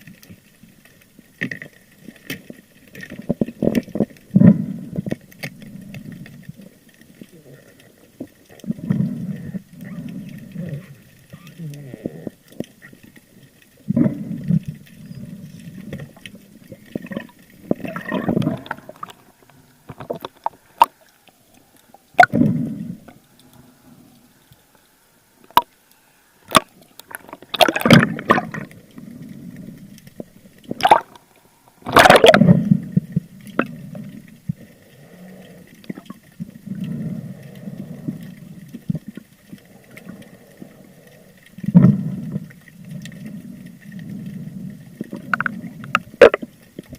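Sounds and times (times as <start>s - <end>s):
water gurgling underwater: 1.4s - 21.1s, 22.1s - 23.2s, 26.5s - 46.9s
rush of bubbles: 13.8s - 21.1s, 26.5s - 29.6s, 30.6s - 34.8s, 35.8s - 40.8s, 41.6s - 46.9s.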